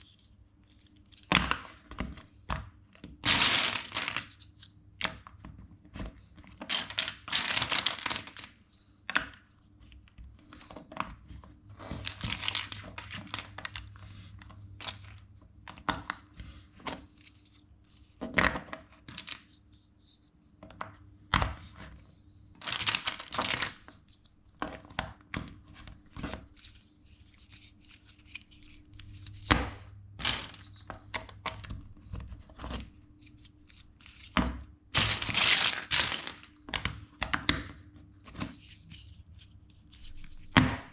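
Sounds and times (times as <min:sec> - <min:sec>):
plastic bricks clicking and rattling: 0:03.3 - 0:04.4, 0:06.6 - 0:09.2, 0:11.8 - 0:13.9, 0:22.6 - 0:23.9, 0:30.2 - 0:31.8, 0:35.0 - 0:37.5.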